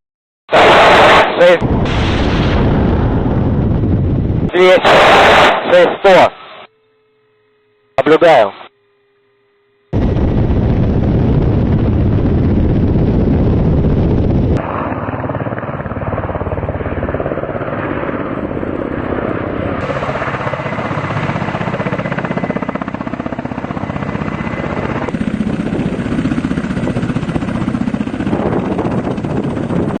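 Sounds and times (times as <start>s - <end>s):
helicopter rotors beating: 0.6s - 5.7s, 9.9s - 30.0s
turbines running: 6.4s - 30.0s.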